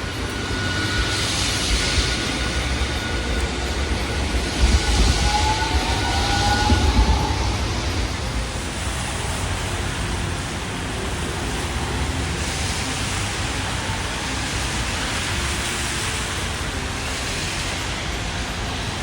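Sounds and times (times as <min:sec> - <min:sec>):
rain: 0:00.0 - 0:19.0
traffic on wet road: 0:00.0 - 0:19.0.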